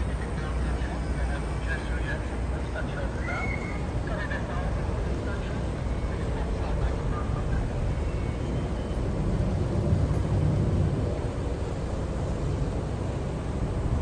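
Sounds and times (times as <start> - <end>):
ferry engine rumble: 0.0 - 14.0.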